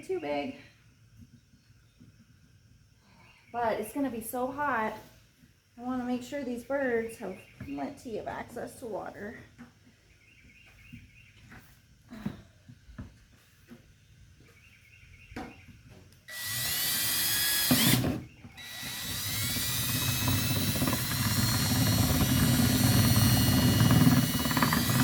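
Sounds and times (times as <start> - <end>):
power drill boring plastic: 16.3 - 25.0.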